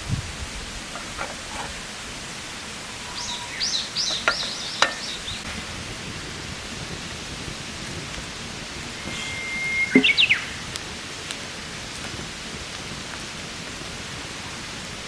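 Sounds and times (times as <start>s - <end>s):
background hiss: 0.0s - 15.0s
bird calling: 2.8s - 5.5s, 8.9s - 10.8s.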